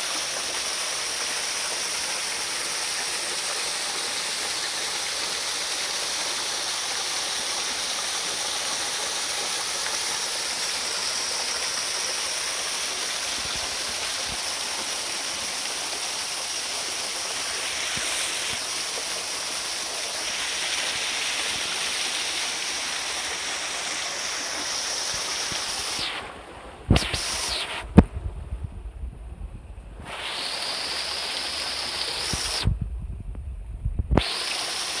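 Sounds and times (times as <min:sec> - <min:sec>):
waterfall rushing: 0:00.0 - 0:28.0, 0:30.0 - 0:32.7, 0:34.2 - 0:35.0
low rumble: 0:27.8 - 0:30.1, 0:32.7 - 0:34.2.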